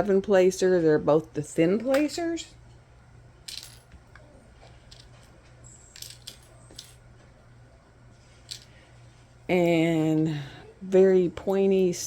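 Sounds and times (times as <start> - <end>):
steady low hum: 0.0 - 12.0
plastic tools clicking and rustling: 3.5 - 7.0, 8.4 - 8.8.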